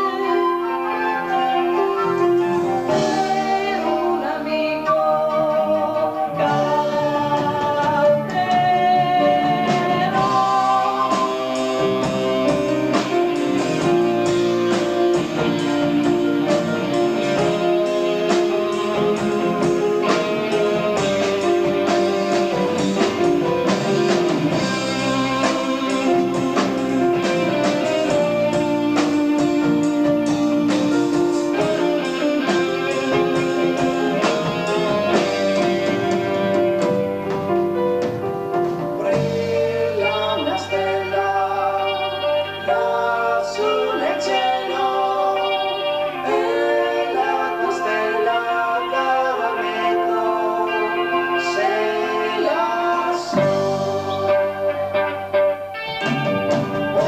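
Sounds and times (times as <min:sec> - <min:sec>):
drums: 0:00.0 - 0:57.0
electric guitar: 0:00.0 - 0:57.0
gliding melodic lead line: 0:00.0 - 0:57.0
keyboards: 0:00.0 - 0:57.0.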